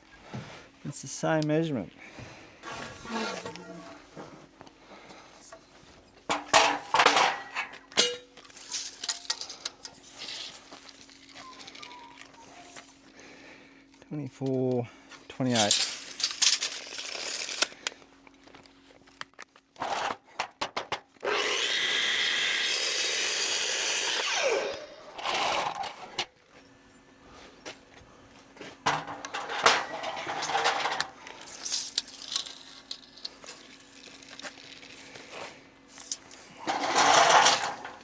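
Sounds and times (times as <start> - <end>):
electric saw cutting timber: 21.2 - 26.3, 36.1 - 38.0.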